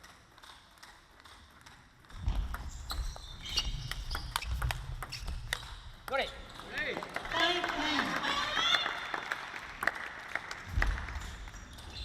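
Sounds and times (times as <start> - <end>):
high squeaks: 2.7 - 6.6.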